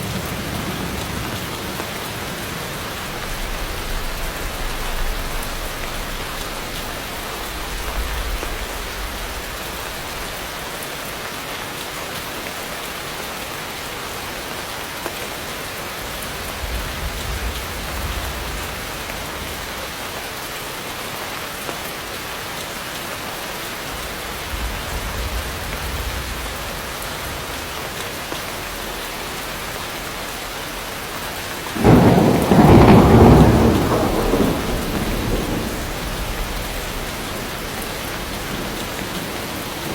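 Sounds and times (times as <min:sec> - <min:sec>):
distant thunder rumbling: 0:00.0 - 0:10.4, 0:16.1 - 0:19.9, 0:23.9 - 0:28.8, 0:31.7 - 0:39.9
heavy rain falling: 0:00.0 - 0:39.9
loud thunderclap: 0:03.1 - 0:10.4, 0:16.3 - 0:19.7, 0:24.1 - 0:27.8, 0:31.8 - 0:39.9.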